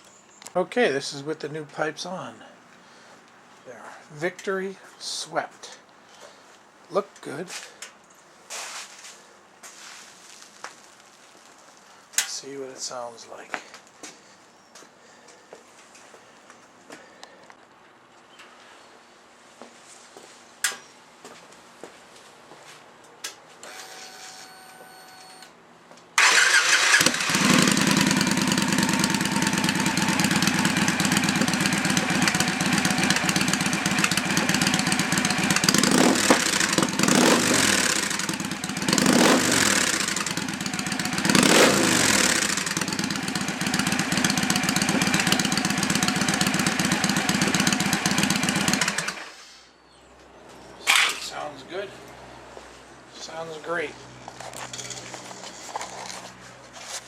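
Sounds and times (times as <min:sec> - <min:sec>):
motorcycle engine starting and revving: 0:26.2 - 0:49.5.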